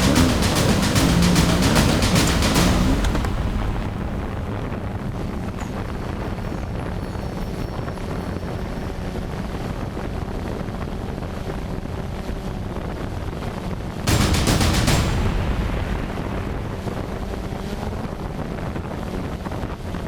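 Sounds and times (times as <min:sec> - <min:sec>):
vehicle engine low rumble: 0:00.0 - 0:07.6.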